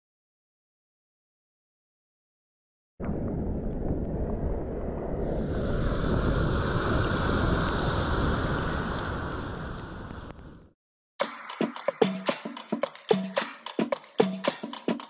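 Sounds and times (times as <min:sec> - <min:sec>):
wind buffeting microphone: 0:03.1 - 0:10.4
ocean surf: 0:05.6 - 0:10.4.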